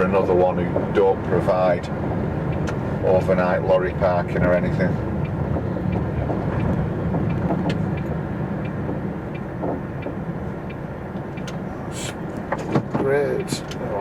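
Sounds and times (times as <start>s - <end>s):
lorry engine drone: 1.2s - 12.6s
faint clicks and knocks in cab: 4.0s - 11.7s, 12.3s - 14.0s.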